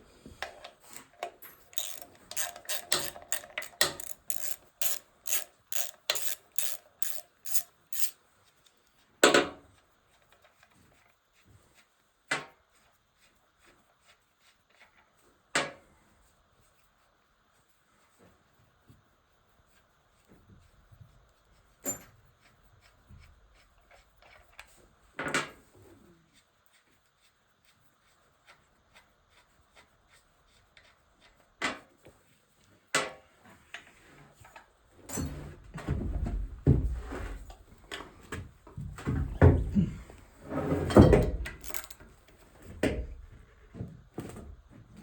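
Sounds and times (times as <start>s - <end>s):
clicks and knocks of hand tools: 0.4s - 8.2s, 41.2s - 42.1s.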